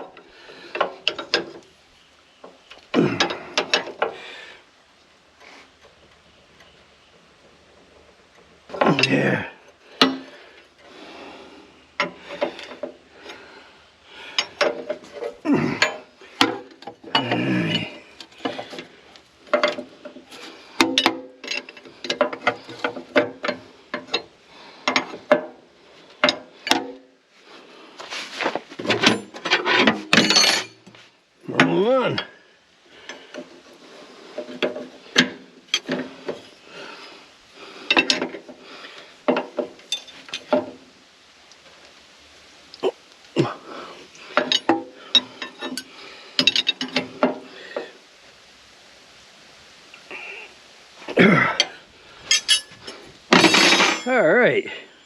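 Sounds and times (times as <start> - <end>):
hand tools clanking on metal: 0.0 - 1.6, 2.9 - 4.2, 8.7 - 10.4, 12.0 - 13.4, 14.1 - 18.9, 19.5 - 25.6, 26.2 - 27.0, 28.8 - 32.3, 34.4 - 37.1, 37.8 - 38.6, 39.3 - 40.7, 44.2 - 47.9, 51.2 - 54.8
wrench and metal fittings clinking: 29.0 - 30.8, 44.4 - 47.2, 51.6 - 54.2.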